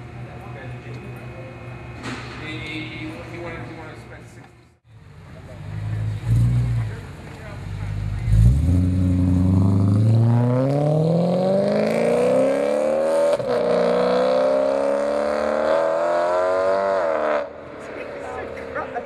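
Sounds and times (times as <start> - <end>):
car engine accelerating hard: 5.6 - 19.0.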